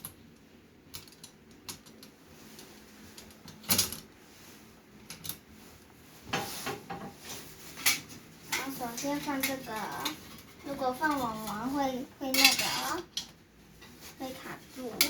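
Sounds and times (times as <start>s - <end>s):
metal parts clinking: 12.3s - 12.9s.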